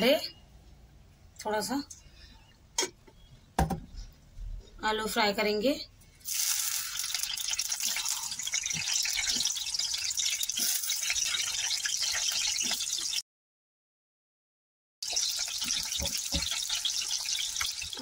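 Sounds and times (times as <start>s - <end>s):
potatoes sizzling in hot oil: 6.2s - 13.2s, 15.0s - 18.0s.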